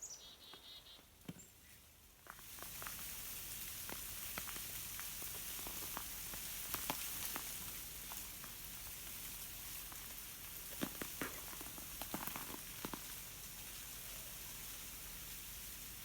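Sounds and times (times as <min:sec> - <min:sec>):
ice cracking on branches: 0:02.2 - 0:14.6
breeze hissing: 0:02.3 - 0:16.0.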